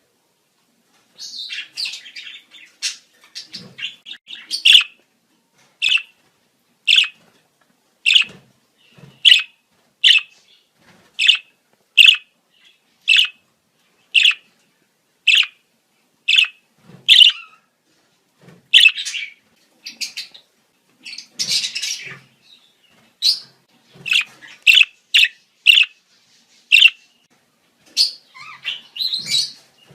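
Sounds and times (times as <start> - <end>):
budgerigars chirping: 1.3 - 5.0, 5.8 - 6.1, 6.9 - 7.2, 8.1 - 8.4, 9.2 - 10.4, 11.2 - 13.4, 14.2 - 14.5, 15.3 - 15.6, 16.3 - 17.6, 18.8 - 20.4, 23.2 - 26.0, 26.7 - 27.0, 28.0 - 29.6.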